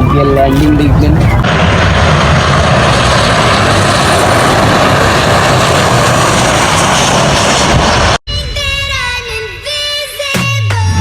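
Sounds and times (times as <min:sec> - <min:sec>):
passenger plane roaring overhead: 0:00.0 - 0:09.2
music: 0:08.4 - 0:11.0.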